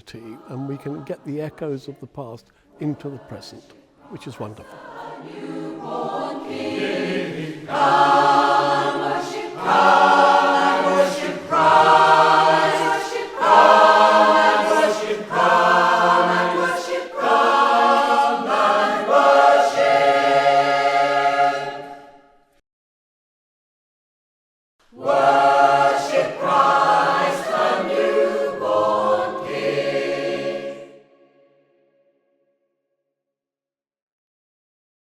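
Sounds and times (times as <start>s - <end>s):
choir singing a carol: 0.0s - 22.5s, 24.9s - 31.7s
singers breathing: 2.4s - 2.8s.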